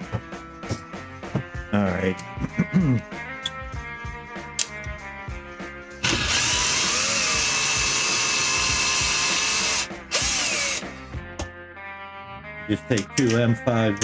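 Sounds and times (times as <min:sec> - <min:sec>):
background music: 0:00.0 - 0:14.0
electric power drill running: 0:06.0 - 0:11.0.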